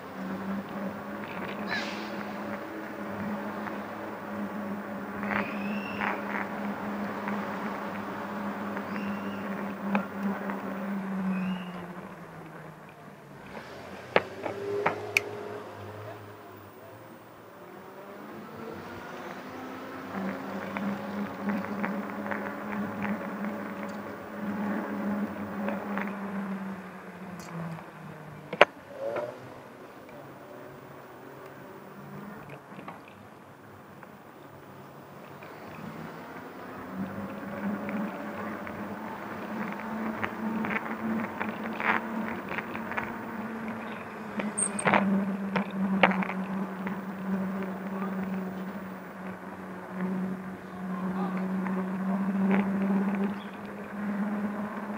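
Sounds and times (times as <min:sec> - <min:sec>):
electric bike motor hum: 0:02.2 - 0:12.7, 0:17.6 - 0:27.9, 0:34.9 - 0:54.9.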